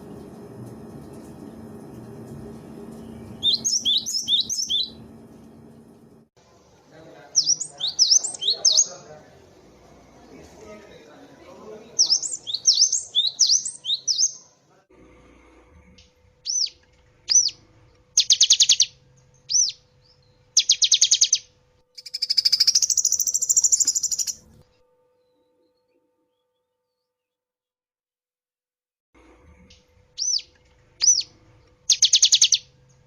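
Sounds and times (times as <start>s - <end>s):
bird singing chirps and trills: 3.0s - 5.1s, 7.4s - 9.0s, 12.0s - 14.5s, 16.5s - 17.6s, 18.2s - 24.4s, 30.2s - 31.3s, 31.9s - 32.7s.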